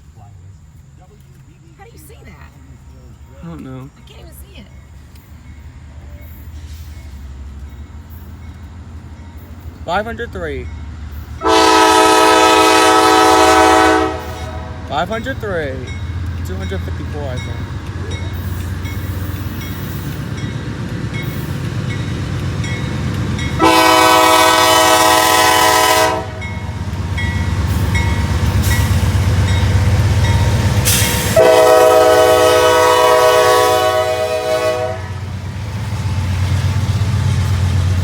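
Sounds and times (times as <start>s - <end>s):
locomotive engine rumbling: 0.0s - 38.0s
crossing bell ringing: 2.5s - 38.0s
train air horn blasts: 11.4s - 14.9s, 23.6s - 26.5s, 30.8s - 35.3s.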